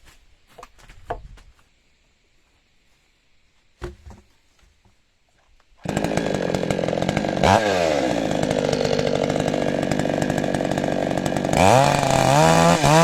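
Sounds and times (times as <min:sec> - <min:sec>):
light knocks and steps: 0:00.0 - 0:01.8, 0:03.0 - 0:05.7
chainsaw running: 0:05.8 - 0:13.0.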